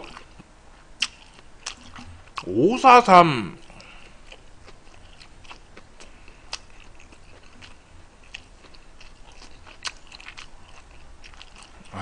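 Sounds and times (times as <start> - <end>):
chewing food: 0.0 - 2.5, 3.6 - 12.0
wet mouth clicks: 1.0 - 2.5.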